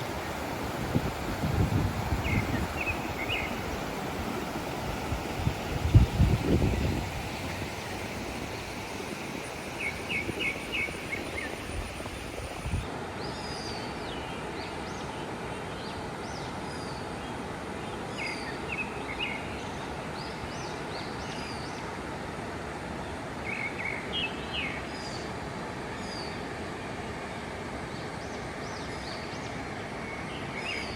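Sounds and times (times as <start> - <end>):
birds chirping: 0.0 - 12.8
outdoor noise: 0.0 - 19.1.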